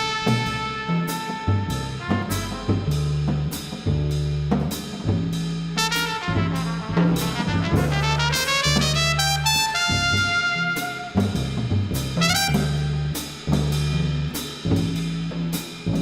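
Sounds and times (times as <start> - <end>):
brass horn playing: 0.0 - 3.5, 5.8 - 13.5
double bass low notes: 0.0 - 16.0
drums and cymbals: 0.0 - 16.0.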